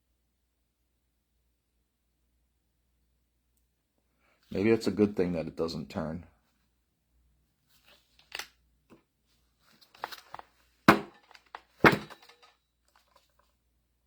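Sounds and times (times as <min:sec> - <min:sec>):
clicks and knocks of tools: 0:11.1 - 0:13.4.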